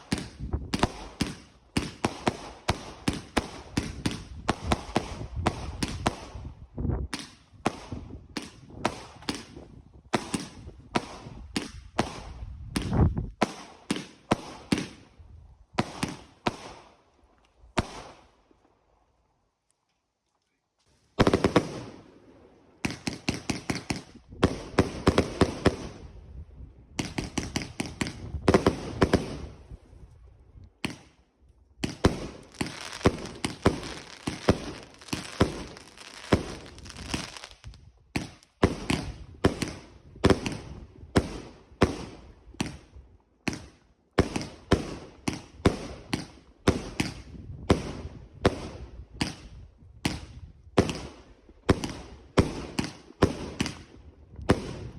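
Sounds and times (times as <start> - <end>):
fireworks bangs and crackles: 0.0 - 17.0, 17.7 - 18.3, 21.1 - 54.9.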